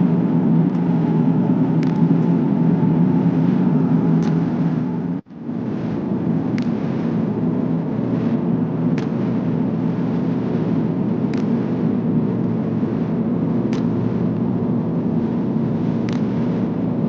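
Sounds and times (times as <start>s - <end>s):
airliner cabin engine drone: 0.0s - 17.0s.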